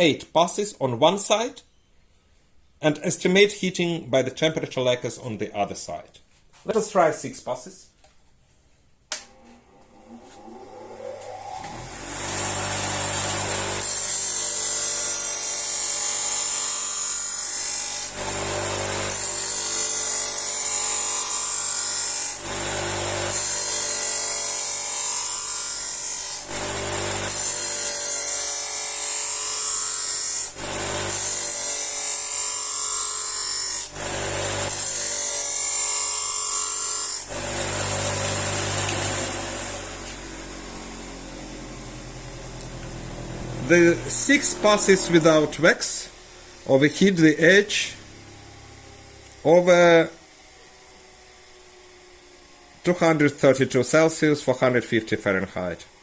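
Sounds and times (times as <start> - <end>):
bench grinder running: 9.2 - 53.2
knife grinding on wheel: 9.3 - 40.8.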